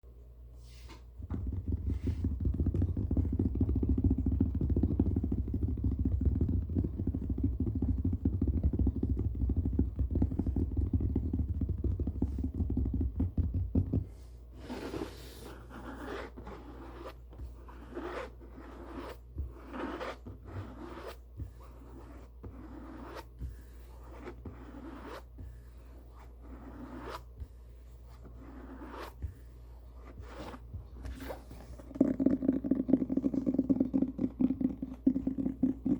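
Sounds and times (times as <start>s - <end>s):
book rubbing near microphone: 14.1s - 34.0s.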